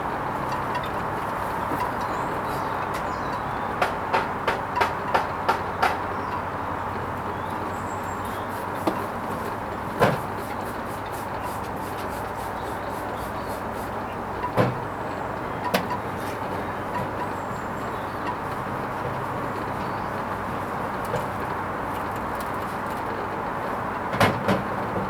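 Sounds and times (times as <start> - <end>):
washing machine hum: 7.0 - 25.0.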